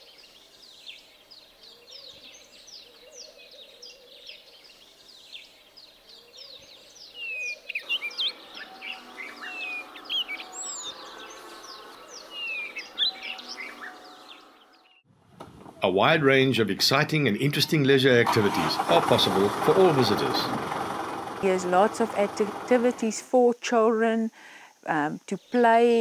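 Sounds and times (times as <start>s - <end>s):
small birds chirping: 0.0s - 15.1s, 21.4s - 26.0s.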